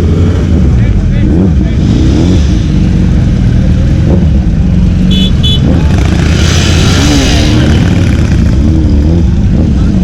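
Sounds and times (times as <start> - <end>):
motorcycle and car engines: 0.0 - 10.0.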